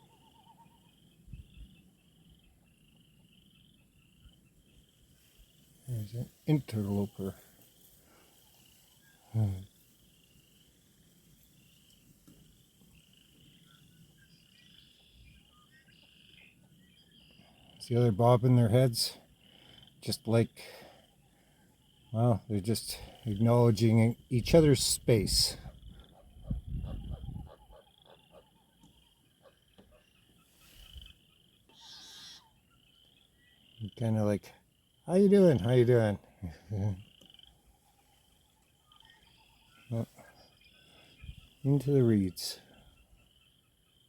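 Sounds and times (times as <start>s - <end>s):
frogs trilling: 0.0s - 7.5s, 8.1s - 44.0s
low wind rumble: 24.2s - 27.7s.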